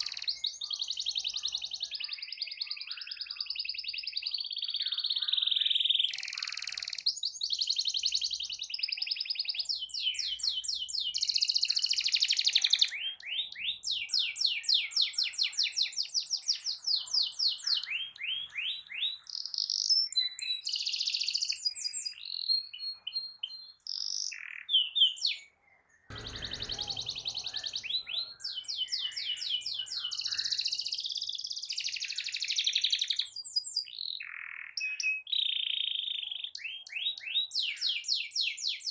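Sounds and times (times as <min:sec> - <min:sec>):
soft low thud: 0:26.1 - 0:28.6.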